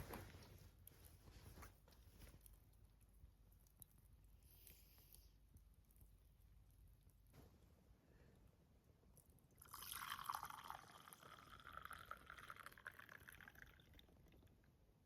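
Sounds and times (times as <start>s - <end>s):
liquid pouring into container: 9.5s - 14.7s.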